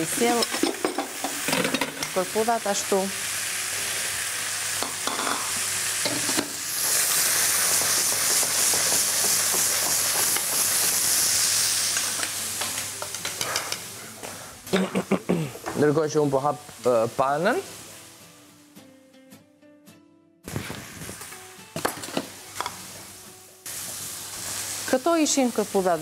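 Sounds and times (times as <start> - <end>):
chicken sizzling in a pan: 0.0 - 14.9, 15.6 - 18.7, 20.5 - 26.0.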